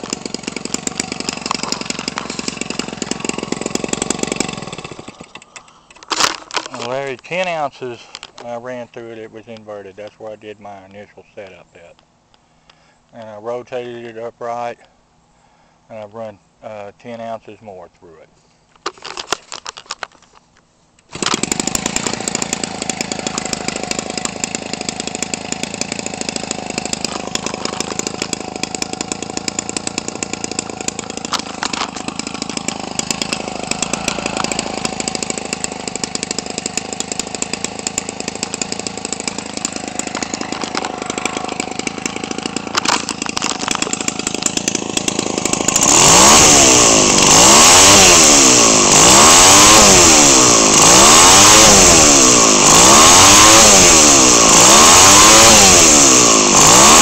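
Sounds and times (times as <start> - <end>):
two-stroke engine idling and revving: 0.0 - 5.7, 21.1 - 57.0.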